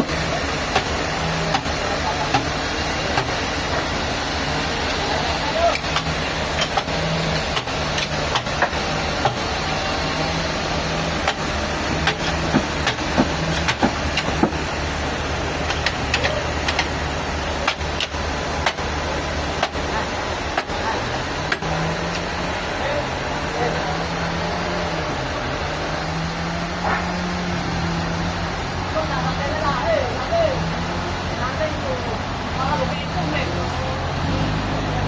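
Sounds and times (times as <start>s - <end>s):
engine running low: 0.0s - 35.0s
sharp clicks and knocks: 5.7s - 9.5s, 11.2s - 14.6s, 15.6s - 17.0s, 17.6s - 18.9s, 19.6s - 19.8s.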